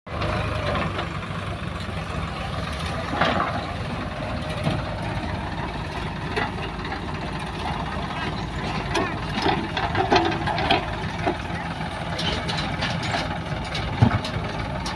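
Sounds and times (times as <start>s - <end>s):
heavy diesel engine running: 0.1s - 14.9s.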